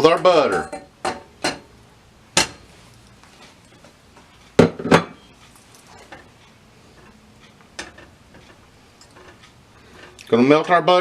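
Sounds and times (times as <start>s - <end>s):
pan and utensil knocking: 0.0s - 1.7s.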